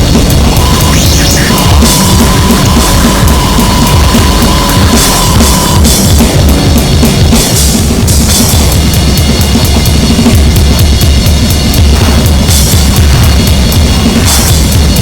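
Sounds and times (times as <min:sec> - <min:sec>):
steady high tone: 0:00.0 - 0:07.8
harsh electronic noise: 0:00.0 - 0:15.0
pounding drum kit: 0:00.0 - 0:15.0.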